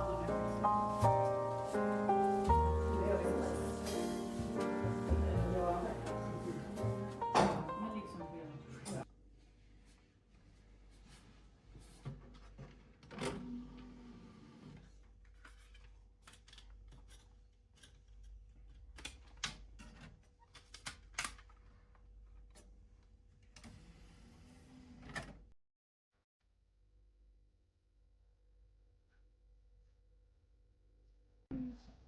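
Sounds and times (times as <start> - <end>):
low steady hum: 2.2 - 8.4.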